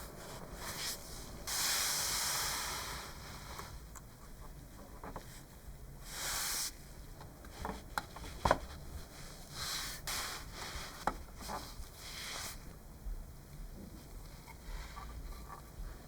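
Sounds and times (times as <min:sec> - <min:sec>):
short hissing bursts: 0:00.6 - 0:03.8.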